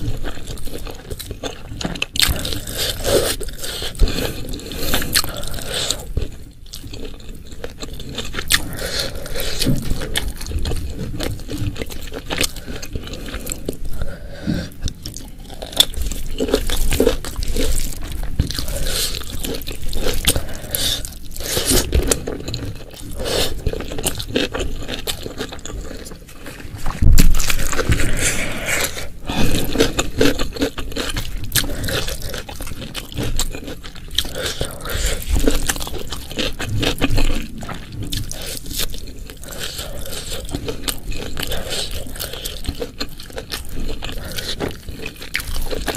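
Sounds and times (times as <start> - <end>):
person chewing and crunching food: 0.0 - 45.9
scrapes: 25.9 - 30.2.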